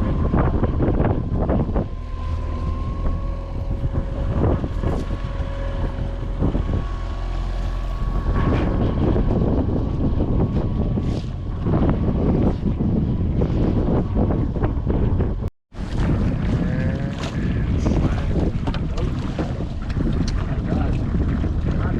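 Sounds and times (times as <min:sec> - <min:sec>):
faint steady whine: 0:00.0 - 0:15.4
wind buffeting microphone: 0:00.0 - 0:21.9.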